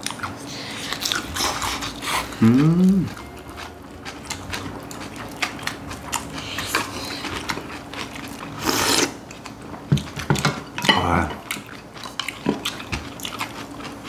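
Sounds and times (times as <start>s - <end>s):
crunchy chewing: 0.0s - 10.4s, 11.4s - 14.0s.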